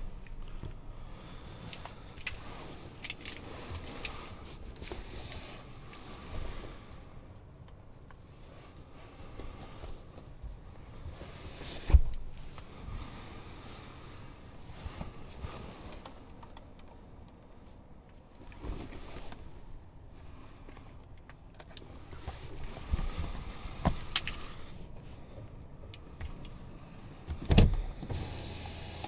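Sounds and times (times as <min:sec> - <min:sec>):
low steady hum: 0:00.0 - 0:29.0
car controls clicking: 0:15.8 - 0:17.5.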